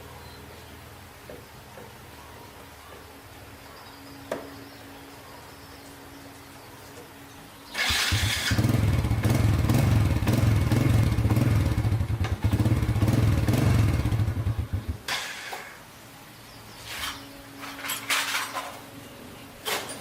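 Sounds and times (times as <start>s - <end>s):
motorbike engine running: 7.8s - 15.1s.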